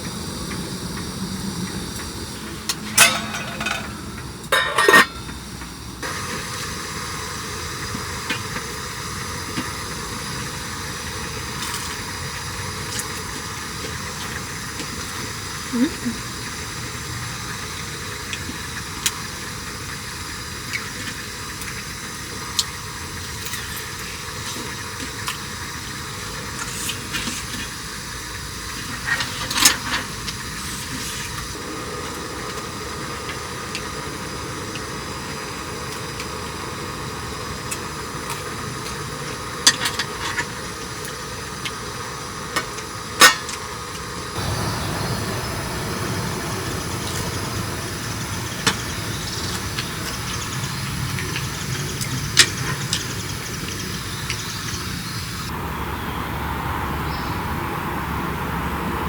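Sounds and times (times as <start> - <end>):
steady hiss: 0.0 - 59.0
low rumble: 44.4 - 49.3.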